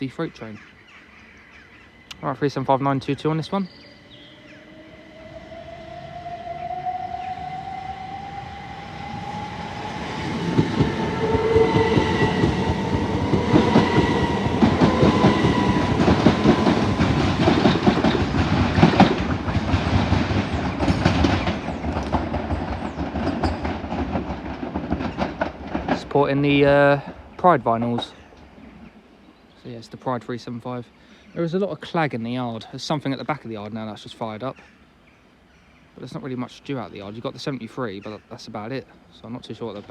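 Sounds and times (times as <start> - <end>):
train traction motors whining: 2.1 - 26.0
wheels clattering over rail joints: 10.3 - 28.2.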